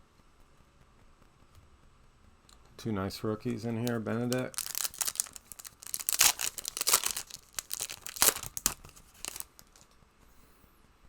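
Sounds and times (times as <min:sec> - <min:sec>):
cards handled: 0:03.8 - 0:09.8
wrapper tearing and crinkling: 0:03.8 - 0:09.8.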